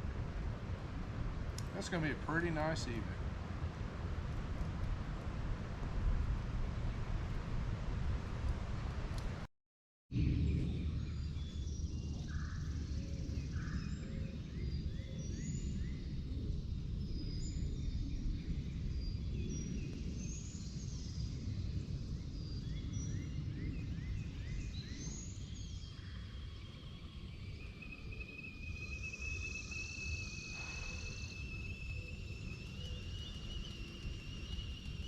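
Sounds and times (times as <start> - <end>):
wind rumble on microphone: 0.0 - 9.5, 10.1 - 35.0
small birds chirping: 22.2 - 35.0
high-pitched drone: 26.1 - 35.0.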